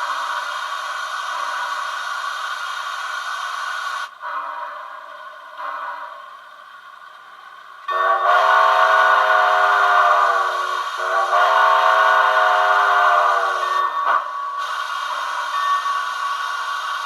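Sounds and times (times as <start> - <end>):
steam whistle blast: 7.9 - 17.0.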